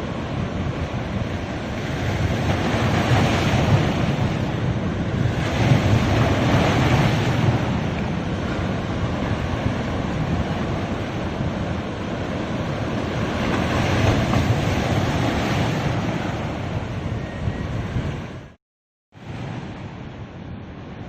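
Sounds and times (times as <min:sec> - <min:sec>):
sea waves washing onto beach: 0:00.0 - 0:16.7
wind rumbling on microphone: 0:00.0 - 0:18.6.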